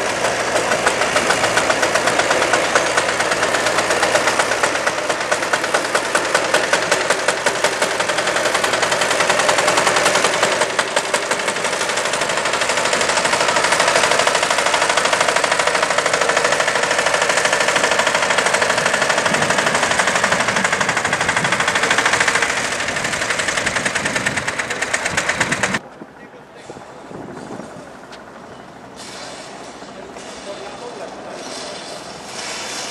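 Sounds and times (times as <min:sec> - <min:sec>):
helicopter rotor chop: 0:00.0 - 0:25.8
turbine whine: 0:00.0 - 0:25.8.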